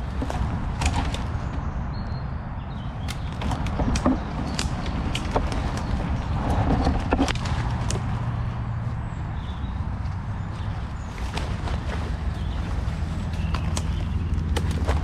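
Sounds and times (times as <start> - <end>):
road traffic rumble: 0.0 - 15.0
twigs snapping: 3.0 - 8.4, 10.6 - 15.0
footsteps through undergrowth: 3.1 - 15.0.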